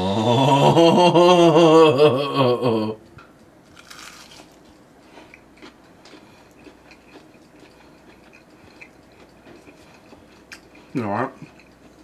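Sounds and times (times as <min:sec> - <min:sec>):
chewing crunchy food: 0:03.7 - 0:12.0.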